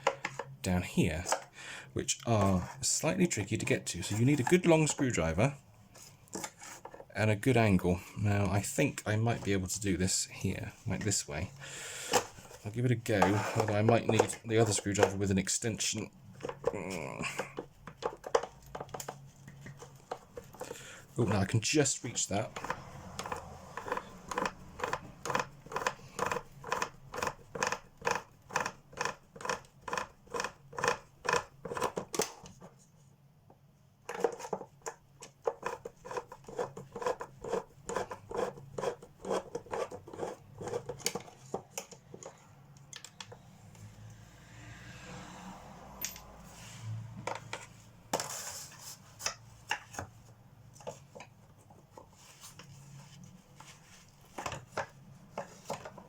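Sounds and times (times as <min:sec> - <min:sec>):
scrapes and knocks: 0:12.2 - 0:15.3.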